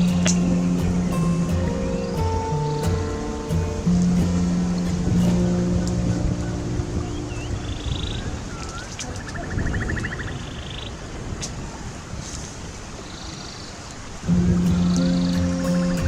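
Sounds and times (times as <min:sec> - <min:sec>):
bird swooping note and trill: 0:00.0 - 0:10.8
wind rumbling on microphone: 0:00.0 - 0:16.0.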